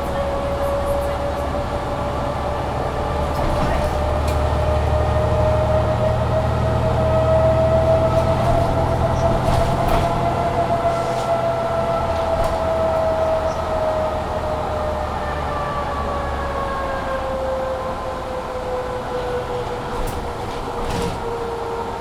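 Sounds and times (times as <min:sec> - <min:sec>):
road noise: 0:00.0 - 0:14.8
bus engine whining: 0:00.0 - 0:22.0.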